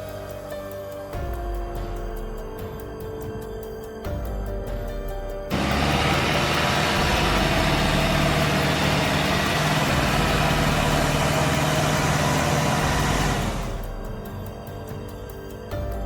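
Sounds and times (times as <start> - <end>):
tractor engine running: 5.5 - 15.3.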